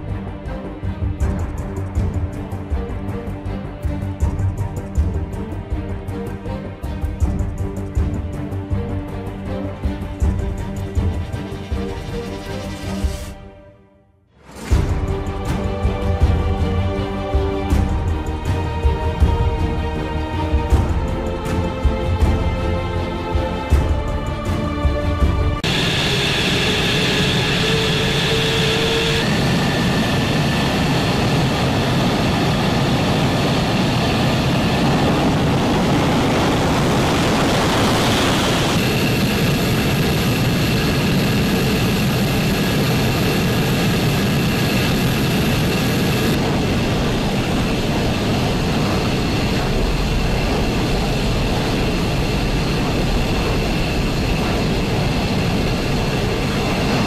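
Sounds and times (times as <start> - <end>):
jet engines with turbine whine: 23.7 - 57.0.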